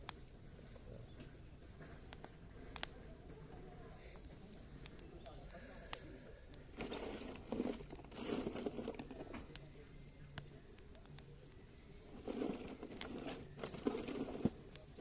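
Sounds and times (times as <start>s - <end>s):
dry branches crackling and rustling: 4.0s - 15.0s.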